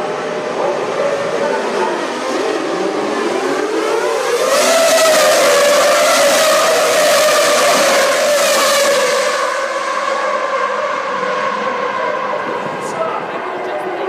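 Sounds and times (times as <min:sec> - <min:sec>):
racing car engine at high revs: 0:00.0 - 0:14.0.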